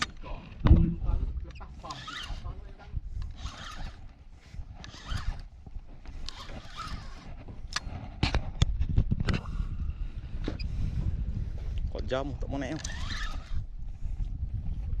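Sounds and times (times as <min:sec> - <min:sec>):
wind on microphone: 0:00.0 - 0:15.0
fishing reel whirring: 0:01.5 - 0:04.1, 0:04.8 - 0:05.5, 0:06.2 - 0:07.3, 0:12.6 - 0:13.7.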